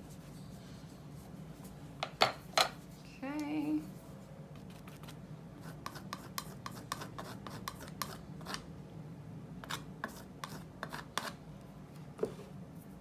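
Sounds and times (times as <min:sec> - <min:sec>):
painting tool scraping paint on paper: 0:04.6 - 0:08.6, 0:09.6 - 0:11.4.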